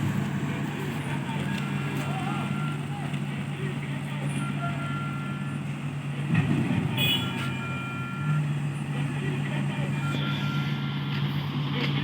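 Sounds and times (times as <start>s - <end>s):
diesel engine running: 0.0s - 12.0s
reversing alarm beeping: 2.2s - 3.0s, 4.2s - 5.7s, 7.0s - 8.9s, 9.5s - 11.2s.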